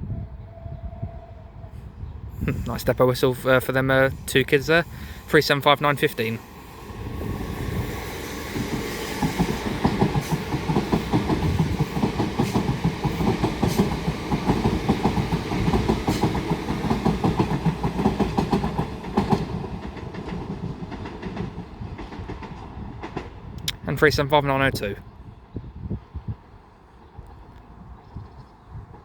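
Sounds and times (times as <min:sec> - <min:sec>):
train rumble: 0:02.3 - 0:24.9
train wheels clattering on track: 0:06.2 - 0:23.8.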